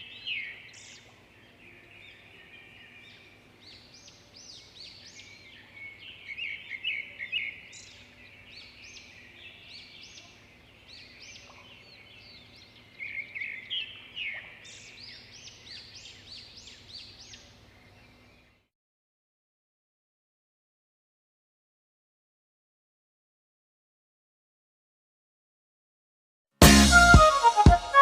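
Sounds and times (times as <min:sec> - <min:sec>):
small birds chirping: 0:00.0 - 0:18.7.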